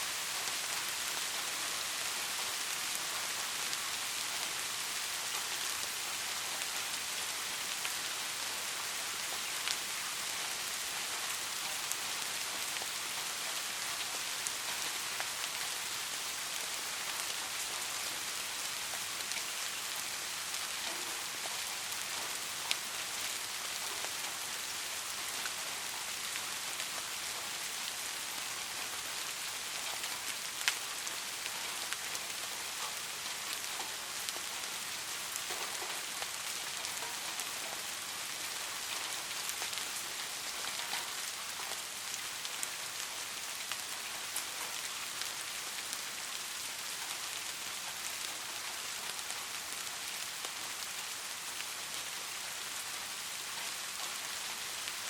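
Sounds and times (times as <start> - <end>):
soft rain hiss: 0.0 - 55.0
raindrop ticks: 18.9 - 27.9, 28.7 - 42.7.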